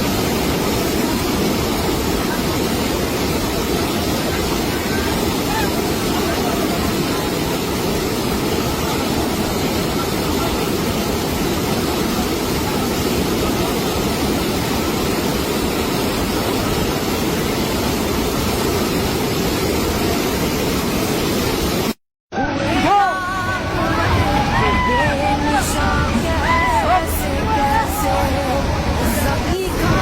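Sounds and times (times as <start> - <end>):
roar of floodwater: 22.5 - 30.0.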